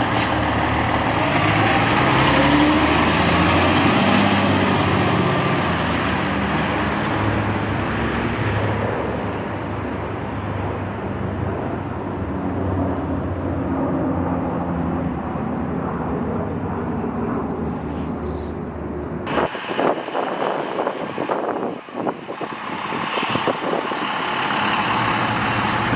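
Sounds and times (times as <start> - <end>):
heavy vehicle engine drone: 0.0 - 25.9.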